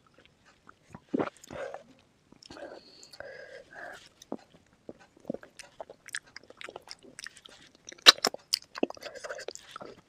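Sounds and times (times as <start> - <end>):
person chewing and crunching: 4.1 - 10.0.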